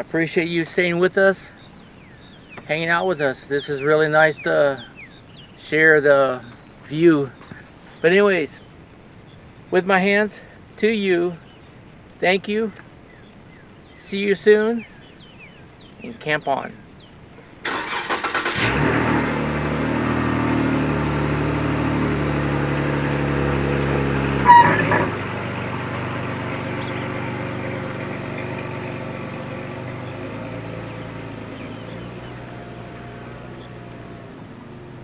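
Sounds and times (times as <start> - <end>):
truck engine cranking and running: 16.9 - 35.0
short beep: 24.4 - 25.1.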